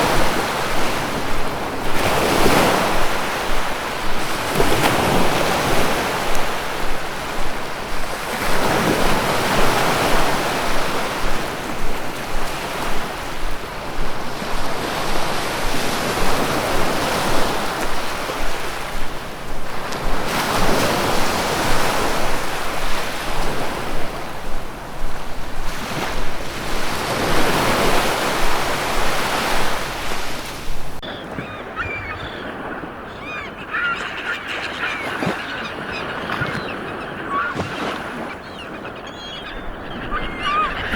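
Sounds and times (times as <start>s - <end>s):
birds calling: 0.0s - 40.9s
ocean waves breaking: 0.0s - 40.9s.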